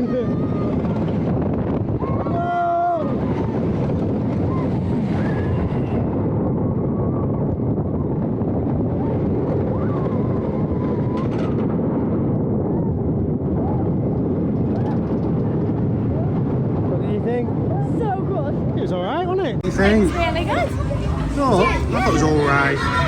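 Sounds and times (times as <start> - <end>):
roller coaster rumbling on track: 0.0 - 18.8, 19.6 - 23.0.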